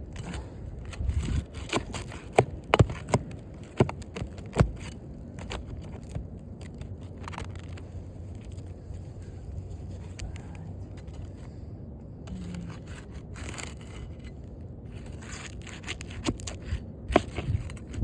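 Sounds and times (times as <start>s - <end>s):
pry tool knocking and scraping: 1.0s - 7.8s, 15.0s - 18.0s.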